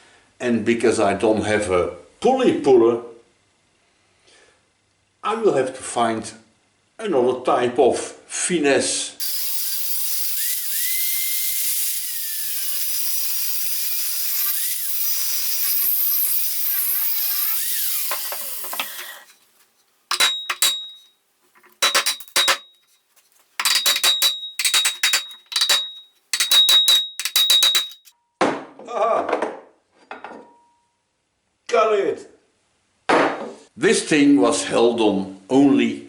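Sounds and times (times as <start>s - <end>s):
angle grinder cutting metal: 9.2s - 19.3s, 20.1s - 21.0s, 21.7s - 22.7s, 23.6s - 28.1s
ringing metal knocks: 20.1s - 21.0s, 21.6s - 22.8s, 23.6s - 28.1s.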